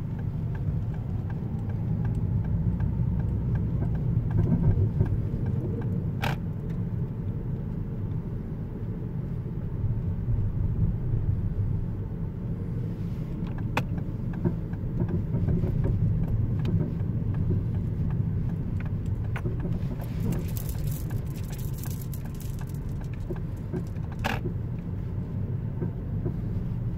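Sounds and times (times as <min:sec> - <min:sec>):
car road rumble: 0:00.0 - 0:26.9.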